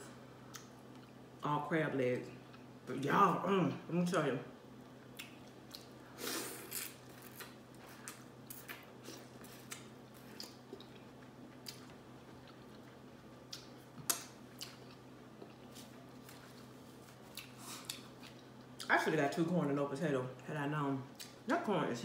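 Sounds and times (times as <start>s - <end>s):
chewing corn on the cob: 6.7s - 18.9s.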